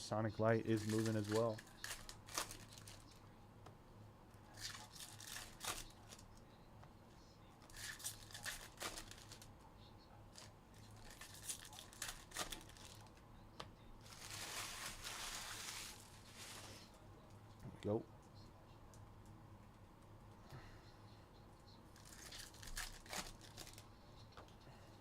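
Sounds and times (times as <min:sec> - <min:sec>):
steady low hum: 0:00.0 - 0:25.0
foil wrappers tearing and crinkling: 0:00.7 - 0:03.1, 0:04.6 - 0:06.2, 0:07.7 - 0:09.5, 0:10.9 - 0:13.1, 0:14.0 - 0:16.9, 0:22.0 - 0:23.8.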